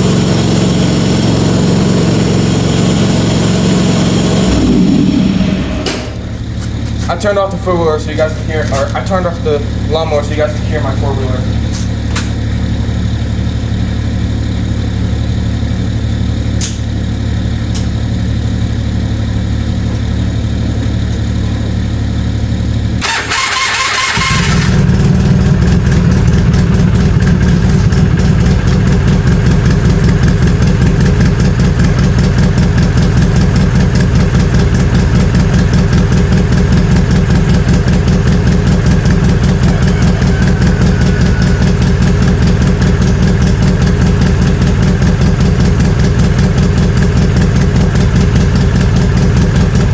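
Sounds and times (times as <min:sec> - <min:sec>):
quad bike engine idling: 0:00.0 - 0:49.9
small engine starting and idling: 0:00.0 - 0:49.9
starter cranking: 0:23.0 - 0:28.9.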